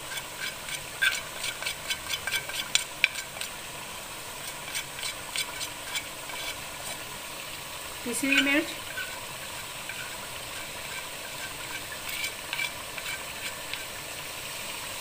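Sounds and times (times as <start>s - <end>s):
chicken sizzling in oil: 0.0s - 15.0s
oil popping and clicking: 0.1s - 3.6s, 4.4s - 7.0s, 8.8s - 13.9s.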